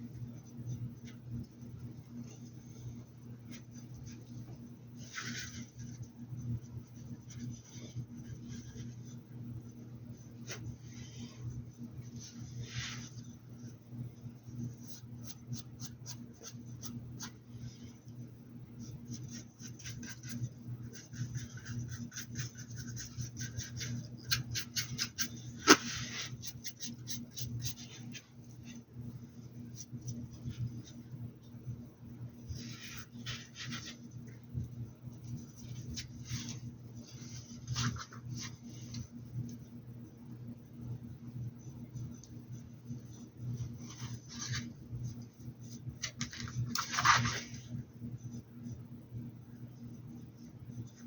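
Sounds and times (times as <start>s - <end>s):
steady low hum: 0.0s - 51.0s
paintbrush scratching: 18.8s - 28.8s.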